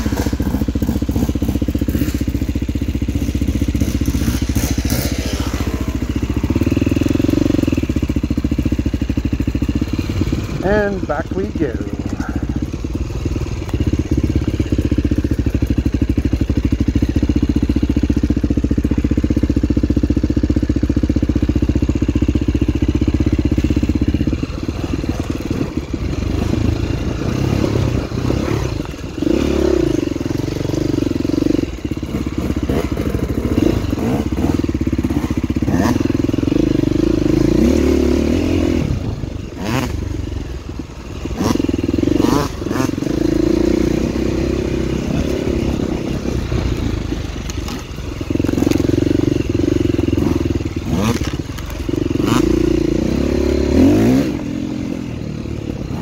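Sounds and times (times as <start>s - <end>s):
dirt bike engine revving: 0.0s - 56.0s
knocks and clatter over rough ground: 23.3s - 36.4s, 44.9s - 52.7s.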